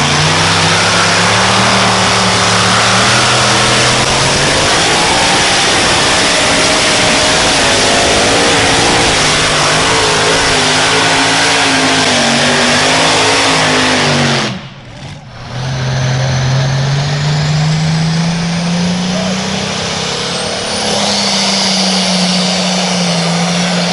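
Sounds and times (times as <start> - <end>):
engine pitch rising slowly: 0.0 - 23.9
pulling vehicle engine at high revs: 0.0 - 23.9.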